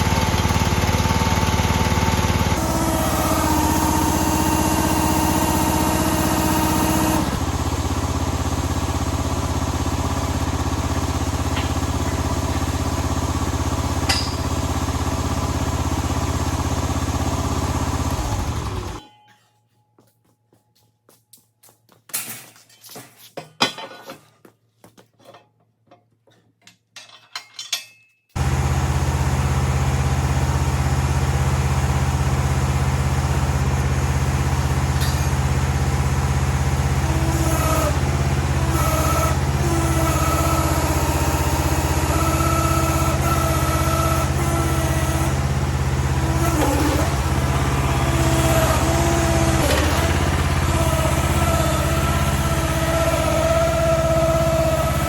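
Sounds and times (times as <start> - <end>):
small gasoline engine running: 0.0 - 19.0, 28.4 - 55.0.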